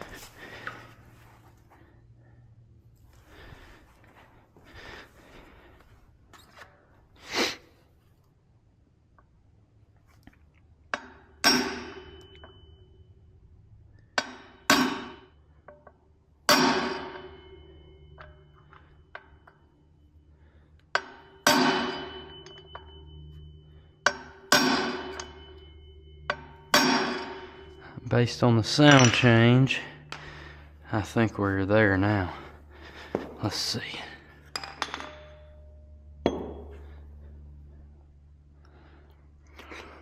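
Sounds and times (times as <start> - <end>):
hammer striking metal with ring: 10.9 - 13.2, 13.9 - 20.0, 20.9 - 30.6, 33.2 - 37.7.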